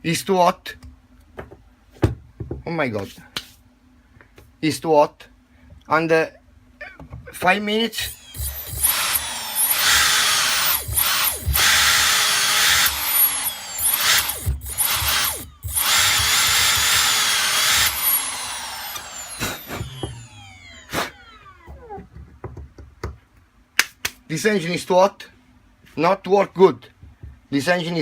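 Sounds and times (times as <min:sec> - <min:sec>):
electric motor whine: 0:08.0 - 0:21.9.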